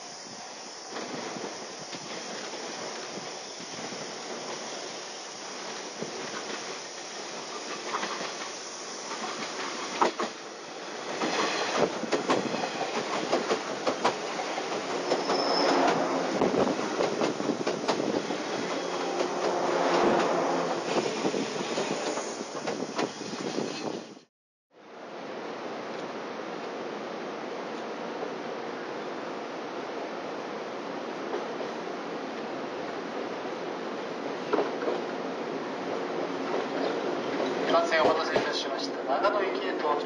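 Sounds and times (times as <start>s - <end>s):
electric train passing: 0.0s - 24.2s
wheels clacking over rail joints: 9.1s - 20.4s, 36.4s - 40.0s.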